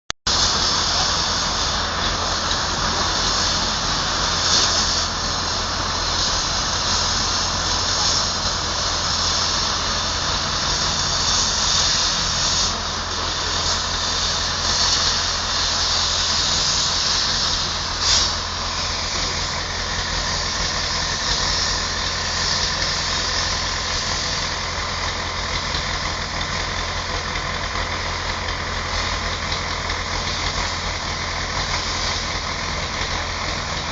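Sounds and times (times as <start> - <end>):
heavy vehicle engine running: 0.3 - 33.9
rain hissing: 0.3 - 33.9.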